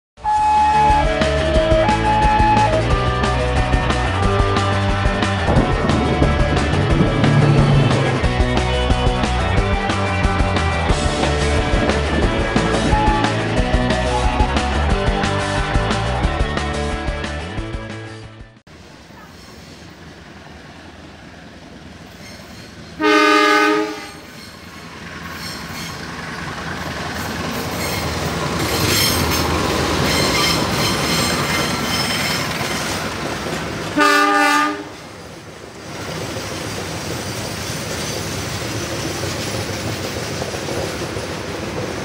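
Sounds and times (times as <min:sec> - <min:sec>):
locomotive horn blasts: 0:00.2 - 0:03.2, 0:12.9 - 0:13.5, 0:23.0 - 0:24.3, 0:34.0 - 0:35.0
engine and wheels din: 0:01.0 - 0:16.4, 0:18.8 - 0:34.0, 0:34.8 - 0:42.0
rail clatter: 0:03.6 - 0:14.7, 0:22.0 - 0:42.0.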